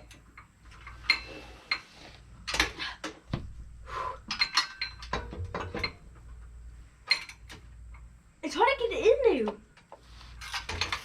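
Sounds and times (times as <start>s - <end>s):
metal tools clinking on metal: 4.3s - 6.0s.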